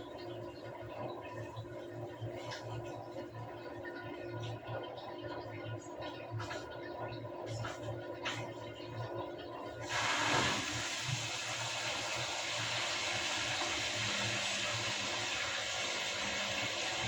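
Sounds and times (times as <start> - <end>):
water rushing into washing machine: 6.0 - 17.0.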